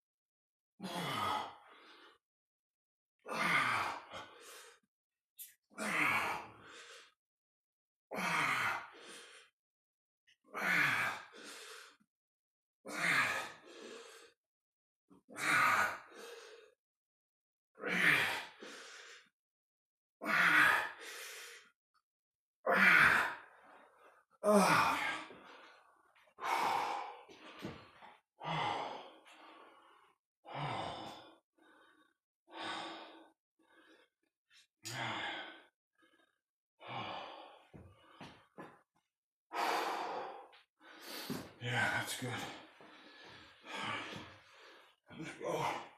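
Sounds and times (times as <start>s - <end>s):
man breathing hard: 0.8s - 2.2s, 3.3s - 4.9s, 5.8s - 7.2s, 8.2s - 9.5s, 10.6s - 12.0s, 12.9s - 14.4s, 15.4s - 16.8s, 18.0s - 19.3s, 20.3s - 21.7s, 22.7s - 34.1s, 34.8s - 38.8s, 39.5s - 45.9s.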